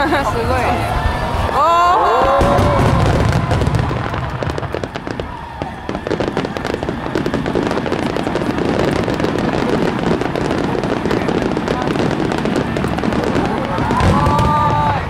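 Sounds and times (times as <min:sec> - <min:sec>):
rapid crackling of small bursts: 0:02.4 - 0:15.0.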